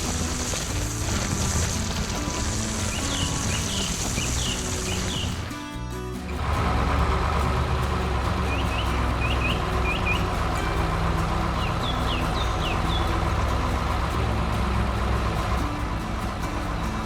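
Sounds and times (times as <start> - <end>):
heavy vehicle engine running: 0.0 - 17.0
bird chirps: 2.2 - 5.6, 8.4 - 13.7.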